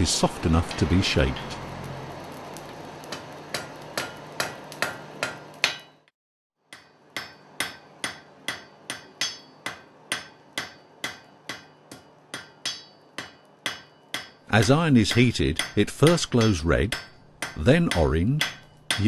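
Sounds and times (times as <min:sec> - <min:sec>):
hammer ringing on anvil: 0:03.6 - 0:06.0, 0:06.7 - 0:14.4, 0:15.1 - 0:19.0.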